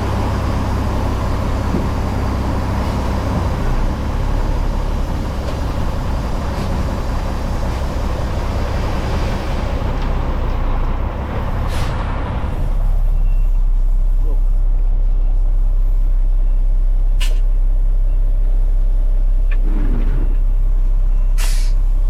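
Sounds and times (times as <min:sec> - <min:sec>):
truck diesel engine running: 0:00.0 - 0:22.0
air brakes hissing: 0:11.6 - 0:12.1, 0:21.4 - 0:21.8.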